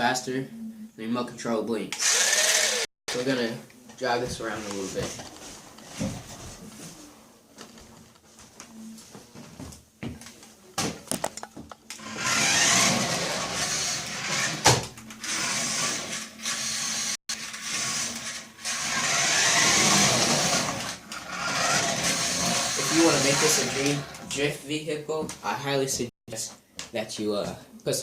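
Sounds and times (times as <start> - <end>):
toy car motor whirring: 2.0 - 2.9, 12.0 - 14.6, 15.2 - 24.1.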